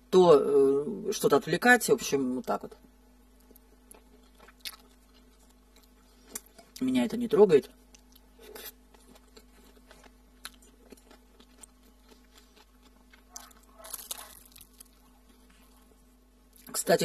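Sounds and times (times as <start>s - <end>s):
quiet chewing with mouth clicks: 3.3s - 6.8s, 7.8s - 16.7s
crunchy bites into toast: 7.9s - 15.5s.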